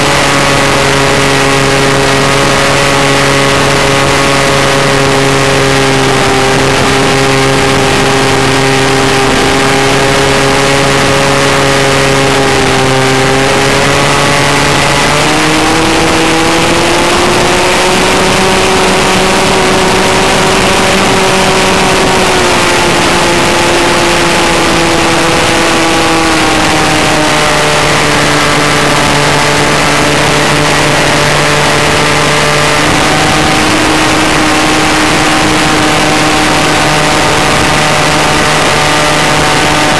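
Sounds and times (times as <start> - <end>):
model airplane engine and propeller: 0.0 - 39.9
wind rushing over microphone: 0.0 - 39.9.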